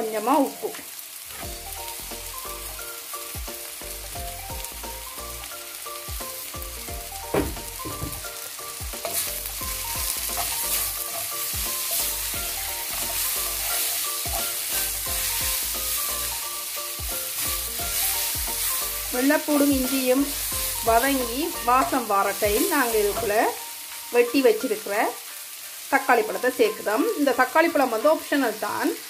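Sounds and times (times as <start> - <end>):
food sizzling in oil: 0.0 - 29.0
spatula knocking on pan: 6.9 - 15.7, 20.9 - 23.4
wooden spatula scraping wok: 7.1 - 23.6.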